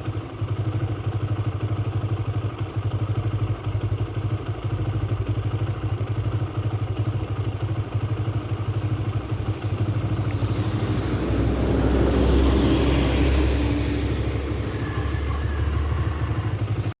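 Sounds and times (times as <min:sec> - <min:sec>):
louder engine rumble with hiss: 0:00.0 - 0:17.0
small engine running: 0:00.0 - 0:17.0.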